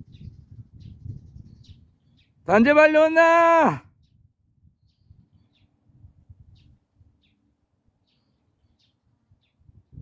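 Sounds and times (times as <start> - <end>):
small bird chirping: 0.0 - 2.4, 4.0 - 5.8, 6.4 - 9.8.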